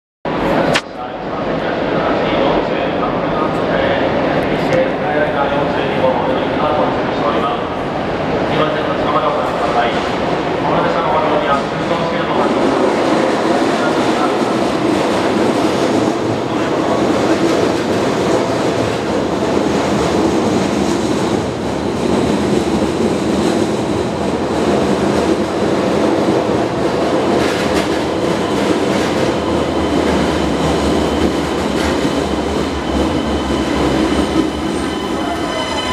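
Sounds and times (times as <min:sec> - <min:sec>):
train wheels rumbling: 0:06.4 - 0:35.9
train brakes squealing: 0:32.4 - 0:35.9.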